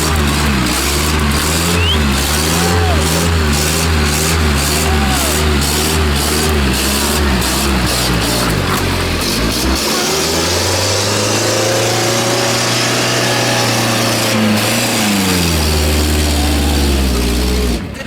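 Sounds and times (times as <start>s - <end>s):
tractor engine under load: 0.0s - 18.0s.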